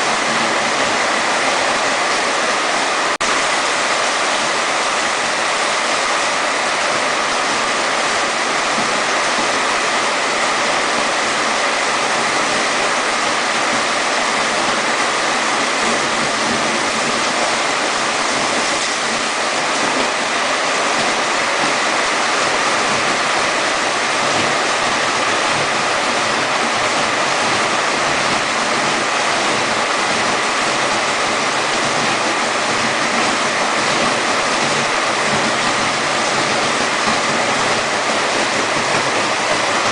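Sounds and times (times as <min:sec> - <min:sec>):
heavy rain downpour: 0:00.0 - 0:39.9
rushing water: 0:00.0 - 0:39.9.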